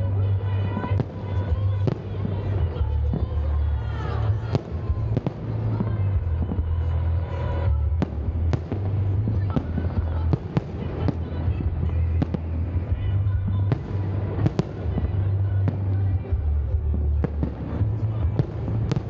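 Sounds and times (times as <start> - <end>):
fireworks cracks and bangs: 0.0 - 19.0.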